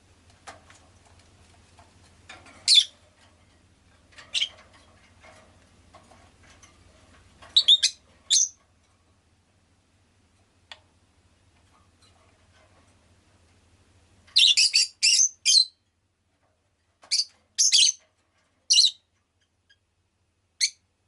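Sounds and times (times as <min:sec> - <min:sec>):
soft bird chatter: 0:01.1 - 0:03.1, 0:04.1 - 0:08.6, 0:14.3 - 0:15.8, 0:17.0 - 0:19.9
bird chirping: 0:02.6 - 0:03.0, 0:04.3 - 0:04.6, 0:07.5 - 0:08.6, 0:14.4 - 0:15.8, 0:17.1 - 0:18.0, 0:18.7 - 0:19.1, 0:20.6 - 0:20.8.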